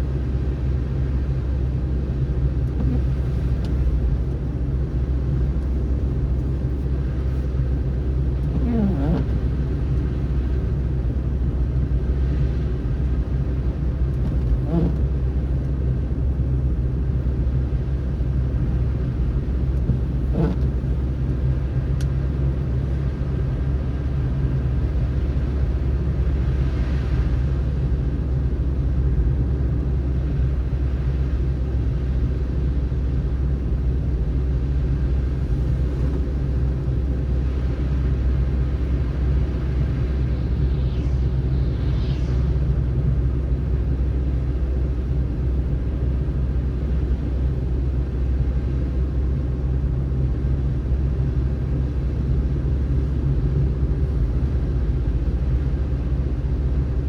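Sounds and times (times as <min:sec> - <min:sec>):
car driving on snowy road: 0:00.0 - 0:57.0
faint brief rising sounds: 0:39.4 - 0:43.7.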